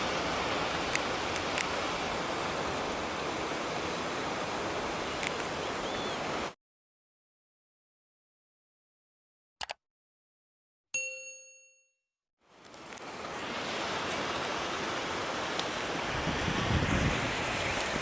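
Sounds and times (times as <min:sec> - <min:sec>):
ocean surf: 0:00.0 - 0:06.6, 0:12.7 - 0:18.0
ding ringing: 0:11.0 - 0:12.0
wind on microphone: 0:16.0 - 0:18.0.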